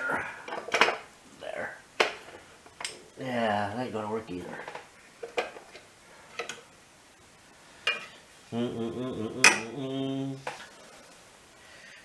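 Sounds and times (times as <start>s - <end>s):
man humming or muttering: 8.4s - 10.7s.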